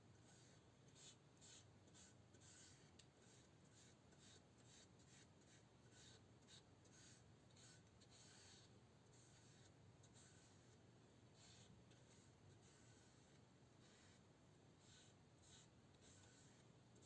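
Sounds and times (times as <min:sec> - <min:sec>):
hand rubbing a surface: 0:11.4 - 0:16.7.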